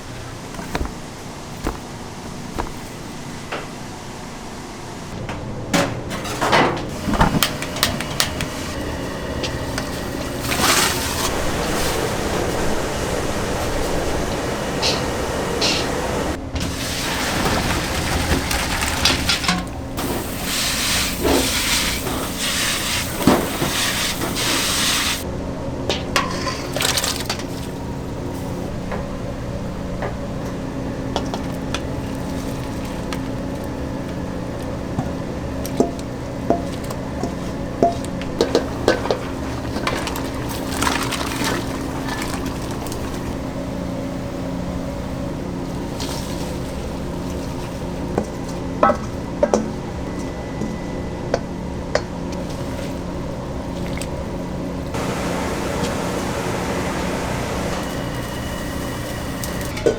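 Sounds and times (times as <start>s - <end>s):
equipment humming: 0.0s - 59.9s
loud hiss: 11.0s - 17.2s, 55.0s - 59.7s.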